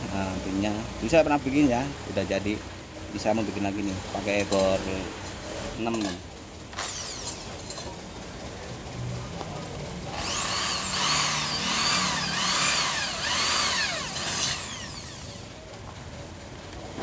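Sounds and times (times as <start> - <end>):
power drill drilling metal: 6.7 - 7.6, 10.1 - 15.5.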